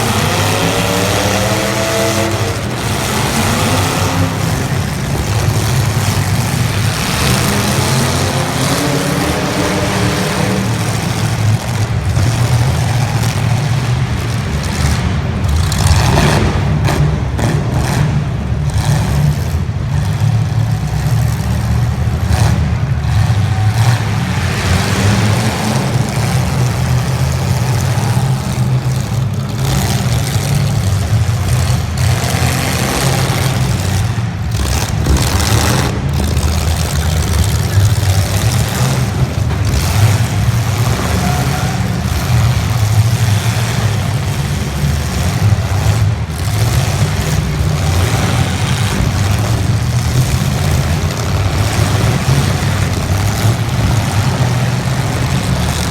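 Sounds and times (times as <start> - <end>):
car engines revving: 0.0 - 55.9.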